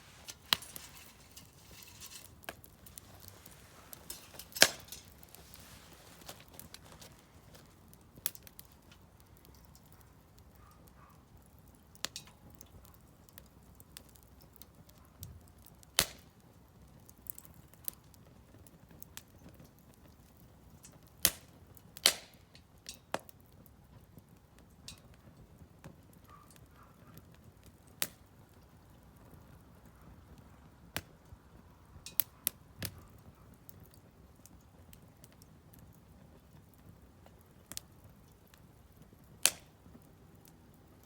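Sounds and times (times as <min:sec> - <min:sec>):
faint steady hiss: 0:00.0 - 0:10.0
firewood crackling and popping: 0:00.0 - 0:41.0.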